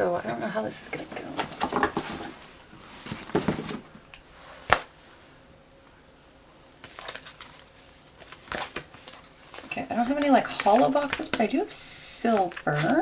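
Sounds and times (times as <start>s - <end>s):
paper rustle: 1.4s - 3.9s, 6.8s - 13.0s.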